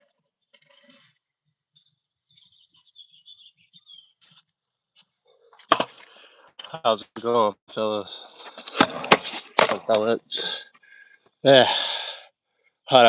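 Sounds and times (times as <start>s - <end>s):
small bird chirping: 0.8s - 5.1s.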